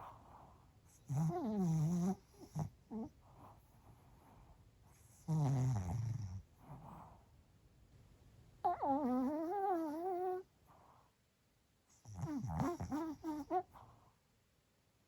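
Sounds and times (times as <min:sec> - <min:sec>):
dog snoring: 0:00.0 - 0:07.2, 0:08.6 - 0:11.0, 0:11.9 - 0:14.1.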